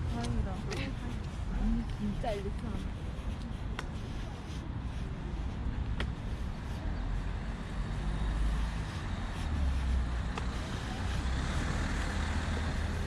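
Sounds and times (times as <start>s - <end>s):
road traffic rumble: 0.0s - 13.0s
vehicle passing by: 7.0s - 13.0s.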